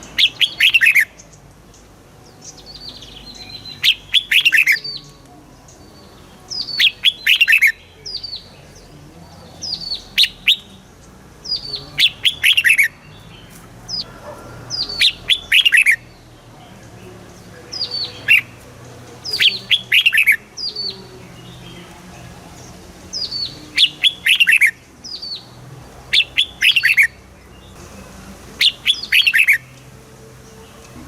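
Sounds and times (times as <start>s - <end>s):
bird singing whistled notes: 0.0s - 31.0s.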